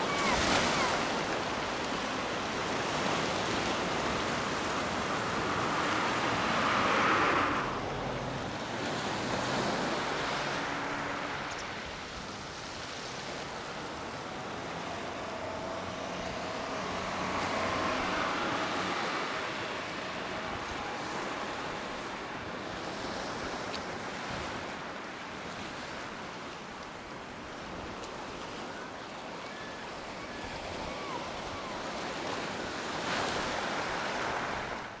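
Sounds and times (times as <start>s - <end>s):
surf breaking on a beach: 0.0s - 35.0s.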